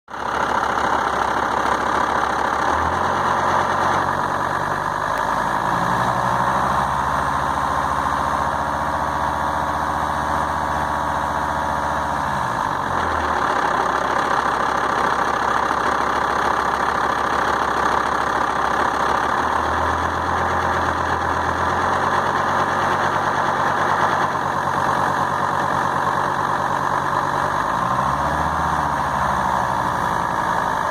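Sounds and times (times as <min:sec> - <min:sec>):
diesel engine idling roughly: 0:00.1 - 0:30.9.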